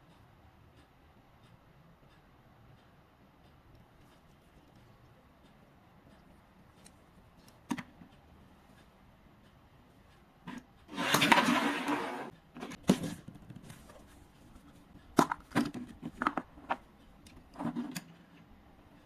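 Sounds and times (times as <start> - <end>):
clicks and knocks of handling: 12.6 - 18.5.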